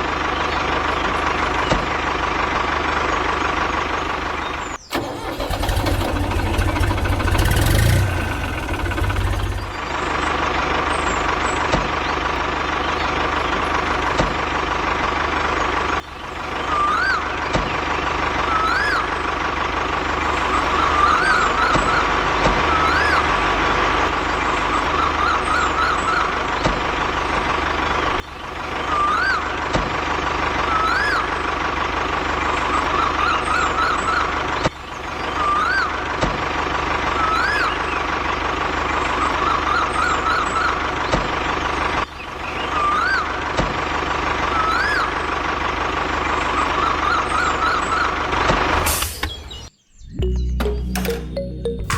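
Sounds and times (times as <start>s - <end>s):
rising and falling chirps: 49.9s - 51.9s.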